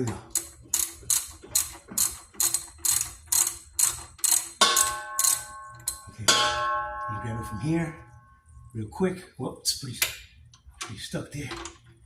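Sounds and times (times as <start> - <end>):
ratchet wrench clicking: 0.3 - 6.0
ringing metallic clang: 4.6 - 8.7.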